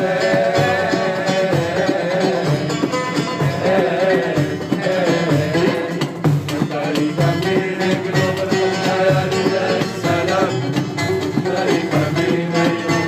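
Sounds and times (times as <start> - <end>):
hand percussion: 0.0 - 13.0
ornamented folk melody: 0.0 - 13.0.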